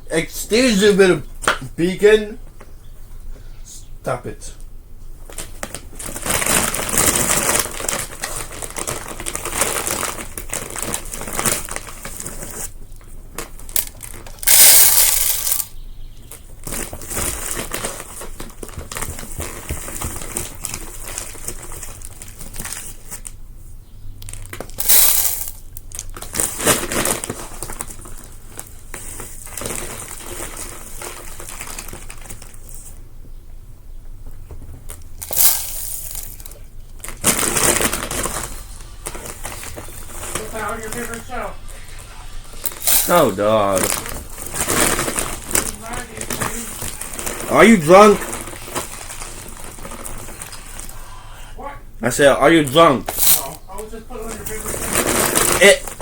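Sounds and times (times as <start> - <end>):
birdseed rustling in plastic bag: 5.3 - 23.3, 24.3 - 33.0, 35.2 - 51.0, 52.7 - 56.0.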